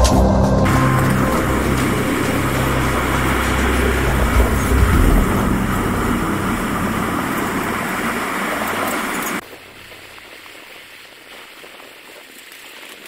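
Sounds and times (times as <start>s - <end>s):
train wheels rattling on rails: 0.7s - 9.4s.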